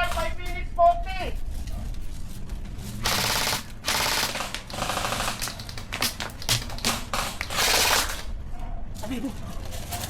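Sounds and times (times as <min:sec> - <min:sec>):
airsoft gun bursts: 0:03.0 - 0:08.3.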